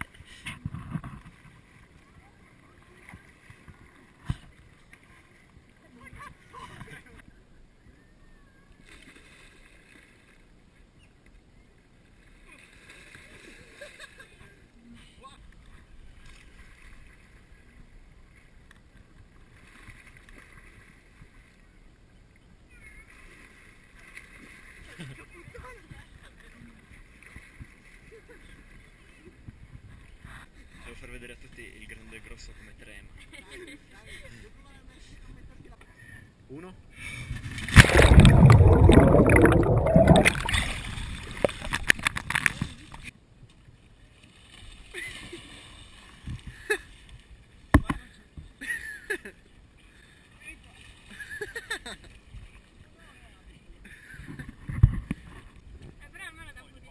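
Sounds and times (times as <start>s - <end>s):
water splashing and sloshing: 0.0s - 7.2s, 15.6s - 21.6s, 23.0s - 25.2s, 37.0s - 43.1s, 44.0s - 47.7s
faint water noise: 0.0s - 30.8s, 33.4s - 56.9s
water drips: 37.8s - 42.0s.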